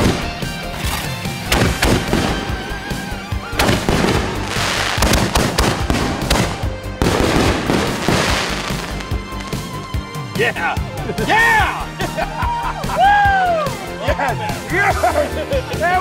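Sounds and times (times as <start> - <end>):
background music: 0.0 - 16.0
firework aerial bursts: 1.4 - 9.9
firework launch bangs: 1.5 - 2.6, 3.6 - 9.7
fireworks hissing: 1.8 - 9.9.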